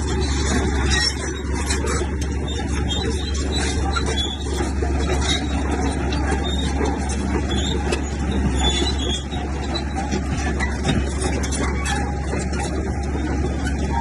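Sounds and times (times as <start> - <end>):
bulldozer diesel engine: 0.0 - 14.0
high metallic squeaks: 0.0 - 14.0.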